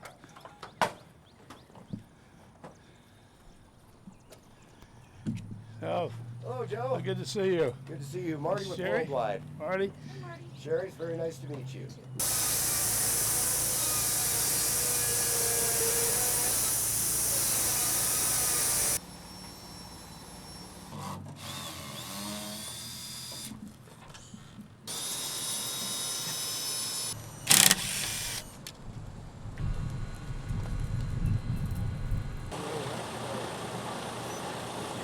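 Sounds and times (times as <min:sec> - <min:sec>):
power tools whirring: 0:12.2 - 0:35.0.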